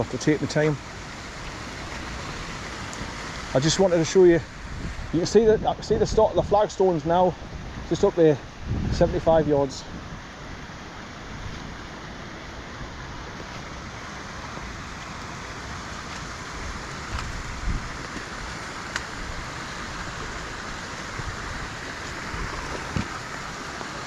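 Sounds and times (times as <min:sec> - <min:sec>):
rain: 0:00.0 - 0:24.0
stream rushing: 0:00.0 - 0:24.0
wind rumble on microphone: 0:02.0 - 0:10.6, 0:15.8 - 0:24.0.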